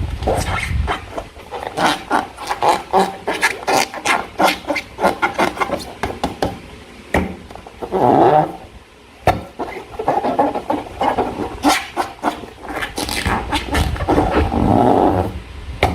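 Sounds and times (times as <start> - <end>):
slime squelching: 0.0 - 6.4, 9.3 - 15.4.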